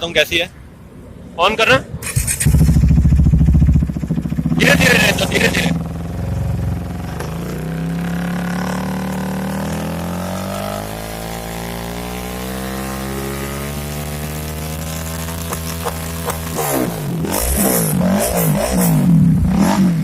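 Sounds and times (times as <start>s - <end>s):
motorcycle engine at low revs: 2.0s - 20.0s.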